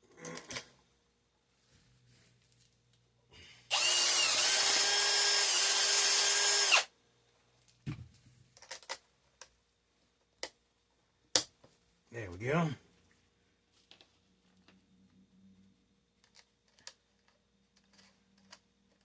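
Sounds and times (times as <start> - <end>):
electric drill drilling metal: 3.7 - 6.9.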